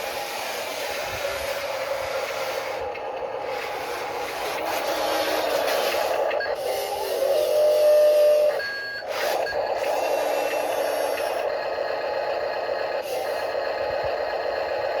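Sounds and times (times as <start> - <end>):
small electric motors whirring: 0.0 - 11.5.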